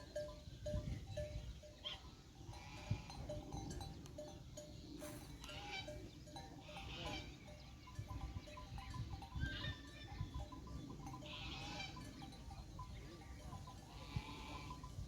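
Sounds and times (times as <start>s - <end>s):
livestock bleating: 6.6s - 7.4s, 11.2s - 12.0s, 13.9s - 14.8s.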